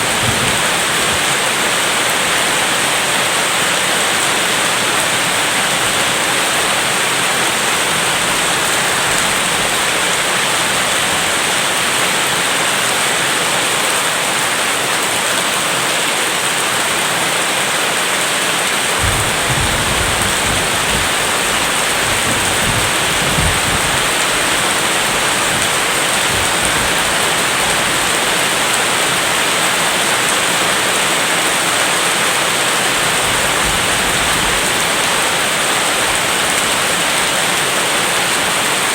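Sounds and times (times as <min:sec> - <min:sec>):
distant thunder rumble: 0:00.0 - 0:03.2, 0:18.9 - 0:28.4
heavy rain hissing: 0:00.0 - 0:38.9.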